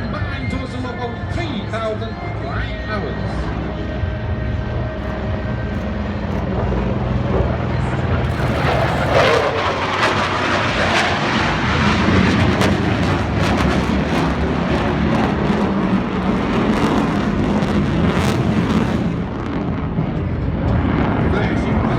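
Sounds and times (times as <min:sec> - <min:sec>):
military aircraft engine roar: 0:00.0 - 0:21.9.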